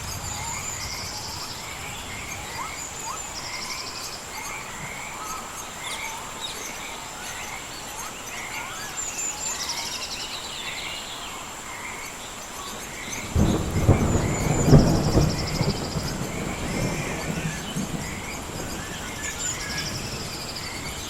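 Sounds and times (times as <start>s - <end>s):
thunder rumble: 0.0s - 5.0s, 13.2s - 21.0s
rain hissing: 0.0s - 9.9s, 11.3s - 21.0s
birds chirping and singing: 0.0s - 21.0s.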